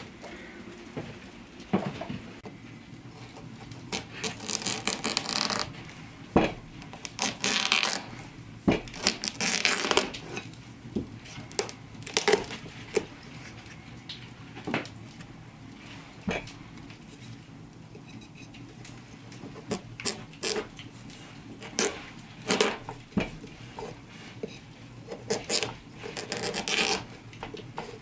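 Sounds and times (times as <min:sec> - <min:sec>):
rough scraping or crunching: 0:03.9 - 0:05.8, 0:25.1 - 0:27.2.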